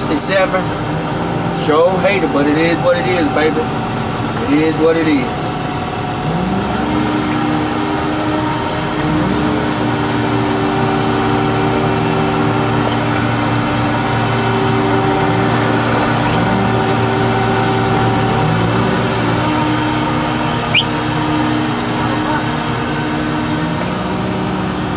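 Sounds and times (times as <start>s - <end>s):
machine engine revving: 5.5s - 24.9s.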